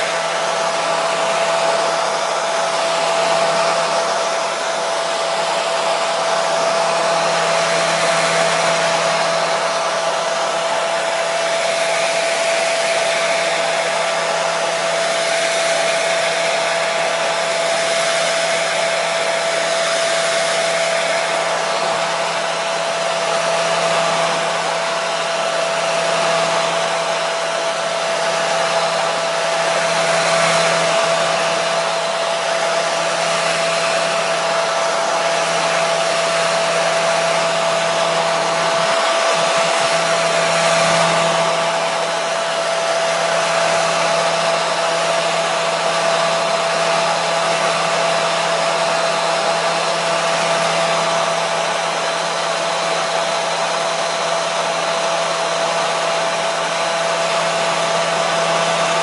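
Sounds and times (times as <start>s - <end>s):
hair dryer running: 0.0s - 59.0s.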